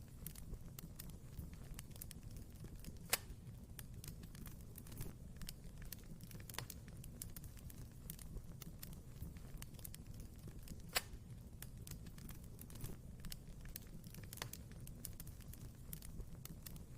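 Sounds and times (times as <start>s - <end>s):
wood fire crackling: 0.0s - 16.9s.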